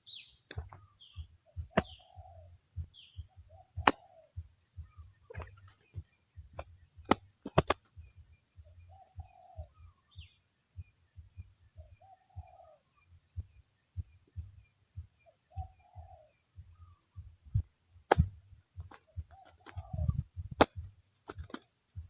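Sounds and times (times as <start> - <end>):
dove cooing: 0.1 - 6.1, 7.5 - 10.4, 11.8 - 13.0, 15.2 - 22.0
sharp clicks: 6.6 - 7.9.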